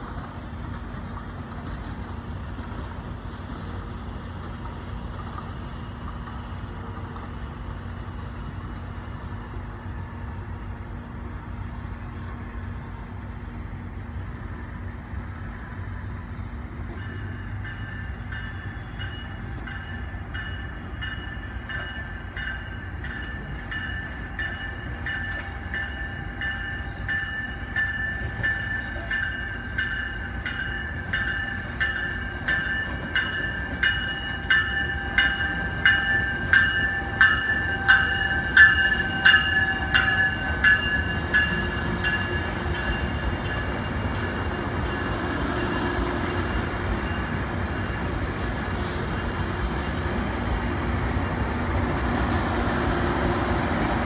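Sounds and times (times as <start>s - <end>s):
train rumble: 0.0s - 54.0s
locomotive bell ringing: 16.9s - 52.1s
high thin wheel squeal: 42.2s - 52.1s.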